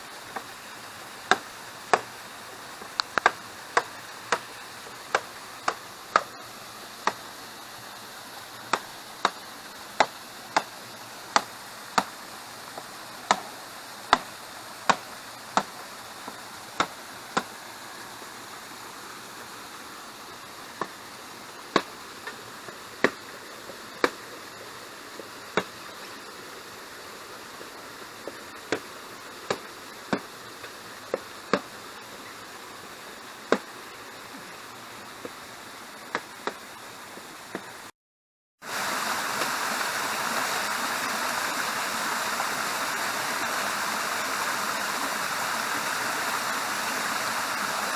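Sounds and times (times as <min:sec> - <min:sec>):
waterfall rushing: 0:00.0 - 0:37.9, 0:38.6 - 0:47.9
tool striking bamboo: 0:01.3 - 0:02.1, 0:03.0 - 0:06.4, 0:08.7 - 0:09.4, 0:10.0 - 0:10.7, 0:11.3 - 0:12.1, 0:12.8 - 0:13.5, 0:14.1 - 0:17.5, 0:21.7 - 0:22.4, 0:25.6 - 0:25.8, 0:29.5 - 0:30.3, 0:31.1 - 0:31.7, 0:33.5 - 0:33.7.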